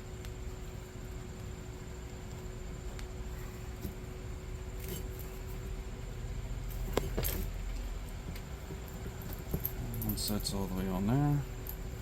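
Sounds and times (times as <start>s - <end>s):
low steady rumble: 0.0s - 12.0s
jingle of metal fittings: 9.5s - 10.8s.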